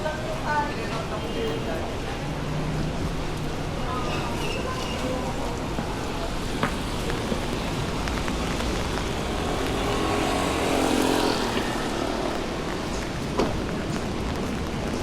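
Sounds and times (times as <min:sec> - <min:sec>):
motor vehicle passing: 0:02.5 - 0:14.9
steady rain hiss: 0:05.2 - 0:15.0.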